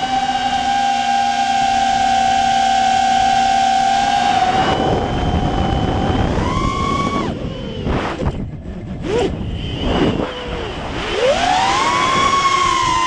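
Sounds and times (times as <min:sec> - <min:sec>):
quadcopter motors whining: 0:00.0 - 0:13.0
wind rumble on microphone: 0:04.2 - 0:13.0.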